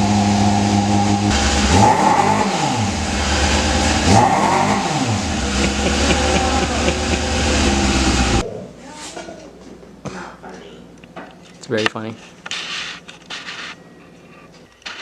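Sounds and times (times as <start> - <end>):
motorcycle engine idling and revving: 0.0 - 8.4.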